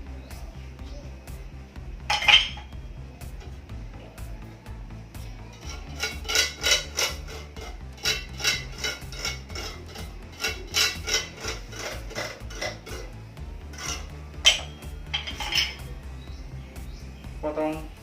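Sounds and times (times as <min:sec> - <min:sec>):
background music: 0:00.0 - 0:18.0
metal tools clinking and tapping: 0:02.1 - 0:02.7, 0:05.6 - 0:13.1, 0:13.7 - 0:15.9.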